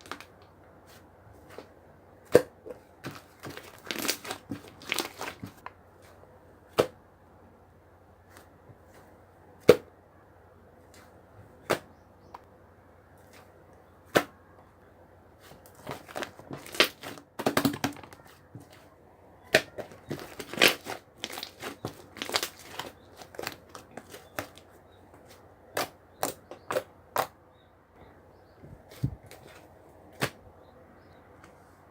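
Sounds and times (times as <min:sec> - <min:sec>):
crackling handling noises: 0:00.0 - 0:01.8, 0:02.6 - 0:06.2, 0:15.4 - 0:27.3, 0:28.6 - 0:30.4.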